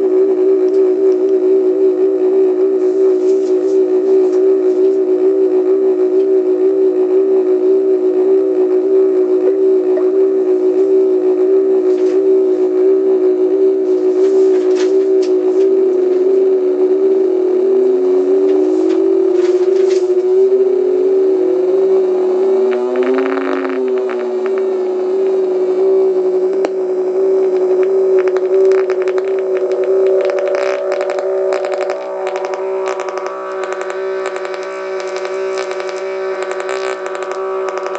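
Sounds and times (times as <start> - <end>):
electronic buzzing drone: 0.0 - 37.9
sliding electronic tones: 9.1 - 11.2, 13.4 - 37.9
crackling clicks: 22.6 - 25.4, 26.5 - 37.9.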